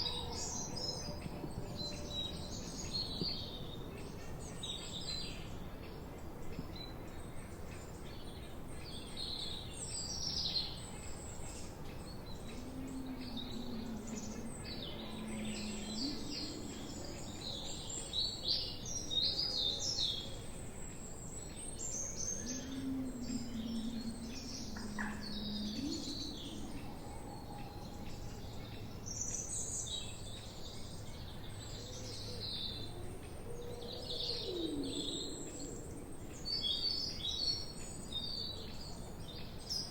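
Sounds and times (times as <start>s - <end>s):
steady background hiss: 0.0s - 39.9s
birds chirping and singing: 11.5s - 20.2s, 21.4s - 38.8s.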